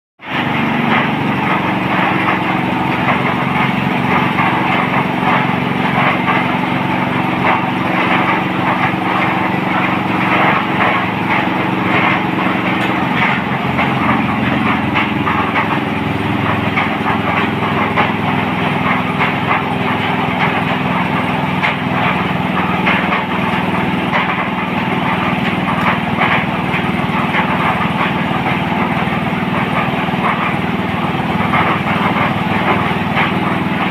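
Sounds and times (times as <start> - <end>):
drilling rig engine rattling: 0.2 - 33.9.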